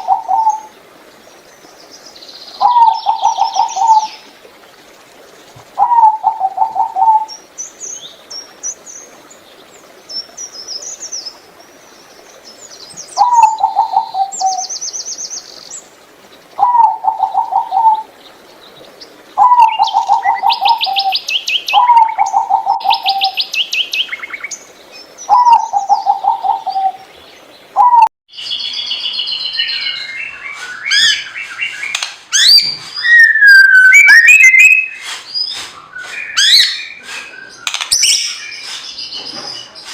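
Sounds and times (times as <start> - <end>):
dove cooing: 0.0 - 0.7, 2.6 - 4.1, 5.8 - 7.3, 13.2 - 14.6, 16.6 - 18.1, 19.4 - 21.2, 21.8 - 23.4, 25.3 - 27.0
small birds chirping: 0.0 - 39.9.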